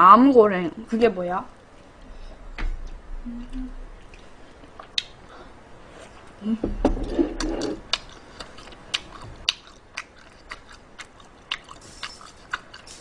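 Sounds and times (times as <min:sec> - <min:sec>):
brief hum: 0:02.2 - 0:04.0
person chewing food: 0:07.3 - 0:13.0.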